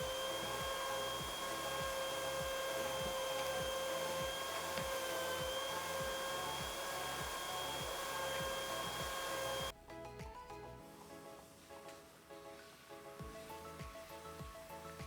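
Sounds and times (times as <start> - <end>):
vacuum cleaner motor whining: 0.0 - 9.8.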